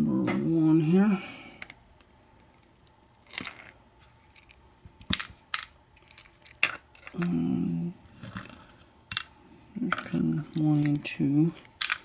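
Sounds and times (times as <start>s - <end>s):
small metal parts clicking: 3.2s - 7.4s, 9.9s - 12.0s.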